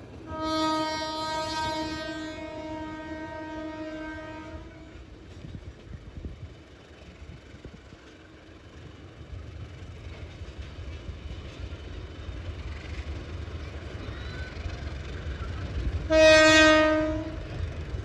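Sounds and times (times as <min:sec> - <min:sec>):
freight train rolling past: 0:00.0 - 0:18.0
train horn: 0:00.3 - 0:05.1, 0:16.0 - 0:17.7.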